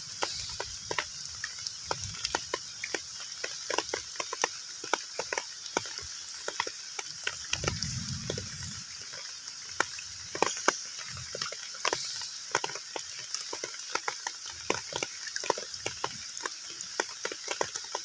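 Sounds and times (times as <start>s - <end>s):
heavy rain on a pond: 0.0s - 18.0s
low rumble: 7.6s - 9.0s.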